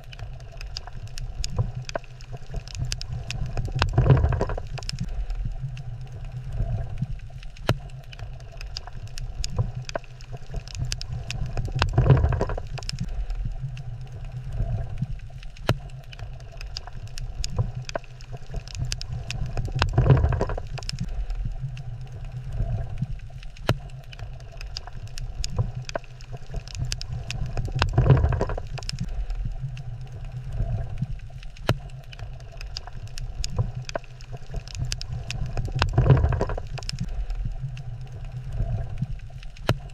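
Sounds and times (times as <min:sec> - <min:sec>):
low underwater rumble: 0:00.0 - 0:39.9
sharp clicks and crackles: 0:00.0 - 0:39.9.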